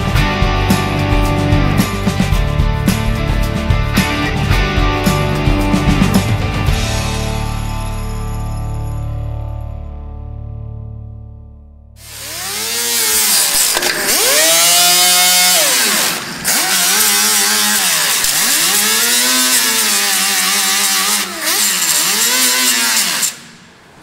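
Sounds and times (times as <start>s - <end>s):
power tool grinding steel: 12.0s - 23.9s.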